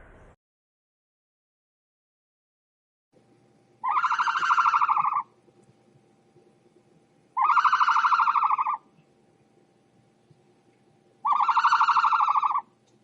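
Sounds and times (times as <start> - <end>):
animal quavering cry: 3.8 - 5.3, 7.4 - 8.8, 11.2 - 12.7.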